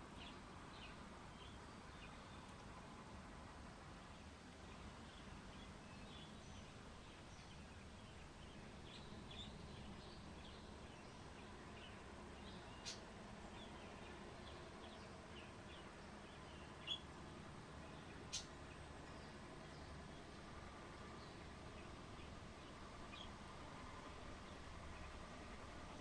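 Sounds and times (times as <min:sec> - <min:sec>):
low outdoor hum: 0:00.0 - 0:26.0
small birds chirping: 0:04.0 - 0:23.5.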